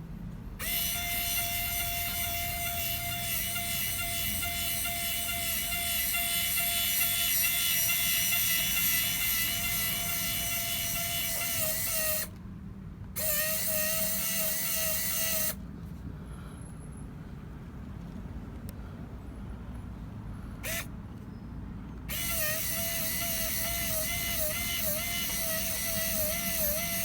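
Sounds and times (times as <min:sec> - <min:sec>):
small electric motor whine: 0:00.6 - 0:12.4, 0:13.2 - 0:15.6, 0:20.6 - 0:20.9, 0:22.1 - 0:27.0.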